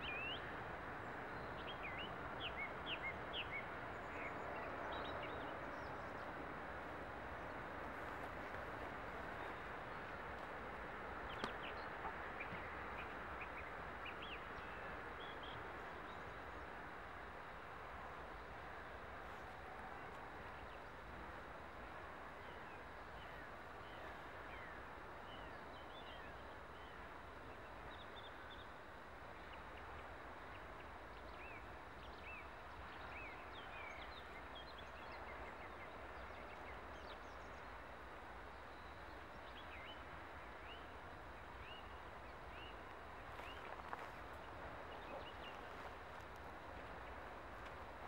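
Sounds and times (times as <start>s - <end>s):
outdoor background rumble: 0.0s - 48.0s
small birds chirping: 22.3s - 48.0s.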